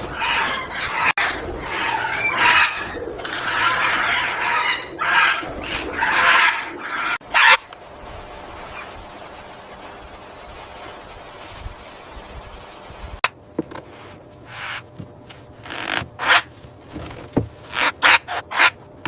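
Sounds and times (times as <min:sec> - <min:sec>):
parrot screeching: 0:00.1 - 0:07.6.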